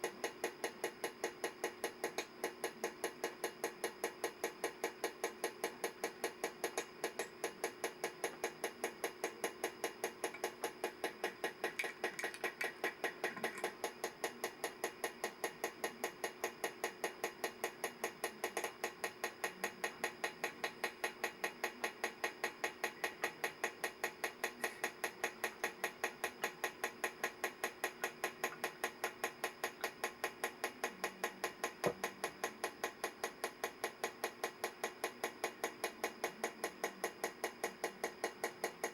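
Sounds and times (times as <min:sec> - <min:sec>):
wristwatch ticking rapidly: 0:08.5 - 0:13.9.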